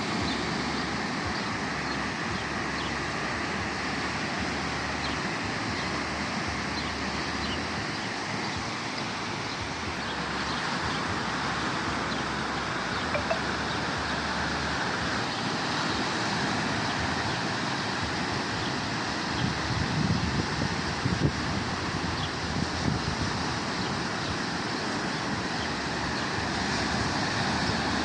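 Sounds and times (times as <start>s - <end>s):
sea waves washing: 0.0s - 28.0s
wind buffeting microphone: 18.0s - 27.9s.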